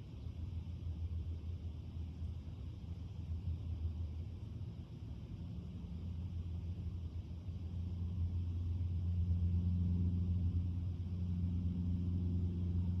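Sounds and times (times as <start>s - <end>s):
low engine drone: 5.4s - 13.0s.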